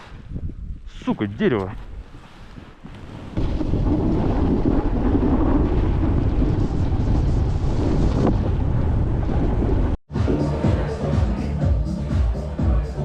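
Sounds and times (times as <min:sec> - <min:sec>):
blizzard wind on microphone: 0:00.0 - 0:10.0.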